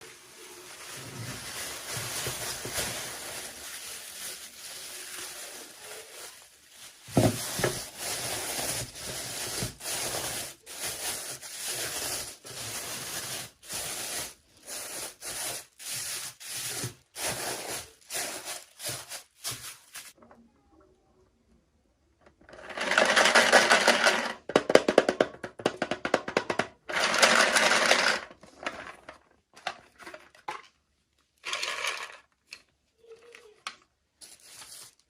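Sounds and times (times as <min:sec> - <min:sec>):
packaging rustling: 0:00.1 - 0:20.2, 0:34.2 - 0:35.0
packaging scraping and tearing: 0:00.5 - 0:20.2.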